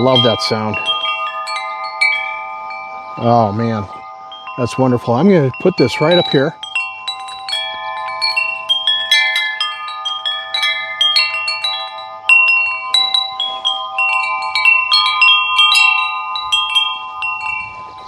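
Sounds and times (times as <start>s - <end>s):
wind chime ringing: 0.0s - 18.0s.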